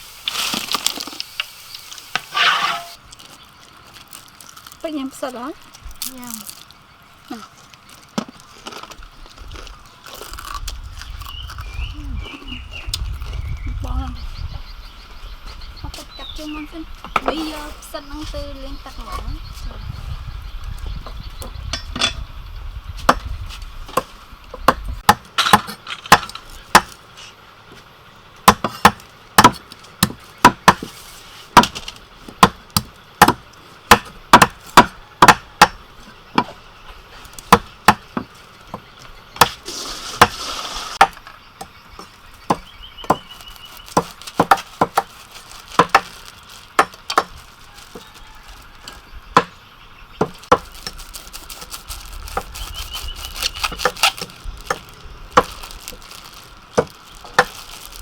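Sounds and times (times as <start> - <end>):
knife scraping board: 2.2 - 3.0, 39.5 - 41.0.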